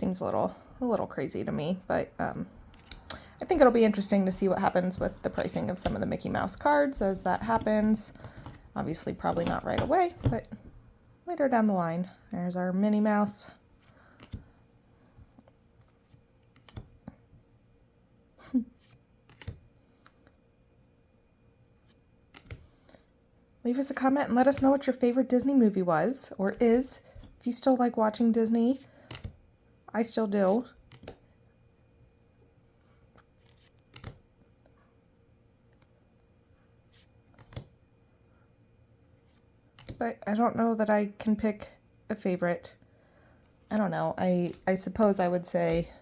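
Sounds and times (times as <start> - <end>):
cards sliding: 2.6 - 10.5, 14.1 - 14.5, 15.9 - 16.9, 18.9 - 19.6, 21.9 - 22.7, 29.1 - 29.4, 30.5 - 31.2, 33.2 - 34.2, 37.0 - 37.7, 39.3 - 40.0
trading cards clicking and tapping: 22.3 - 22.6, 29.1 - 29.4, 33.2 - 34.2.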